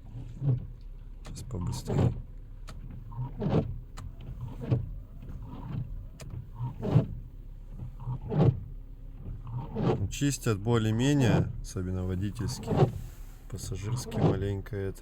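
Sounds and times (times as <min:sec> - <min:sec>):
wiper blades squeaking on glass: 0:02.9 - 0:10.1, 0:12.2 - 0:14.4.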